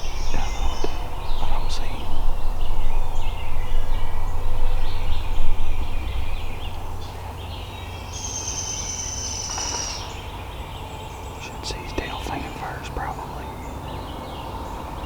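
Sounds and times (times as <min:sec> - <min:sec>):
low rumble: 0:00.0 - 0:07.9
small birds chirping: 0:00.0 - 0:15.0.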